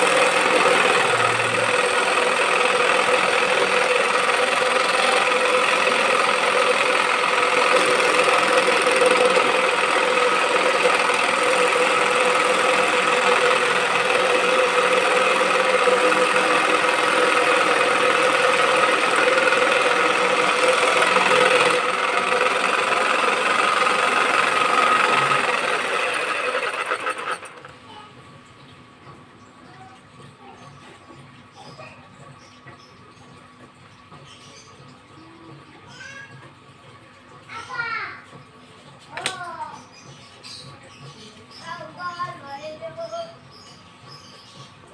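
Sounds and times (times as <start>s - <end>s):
electric scroll saw running: 0.0s - 27.8s.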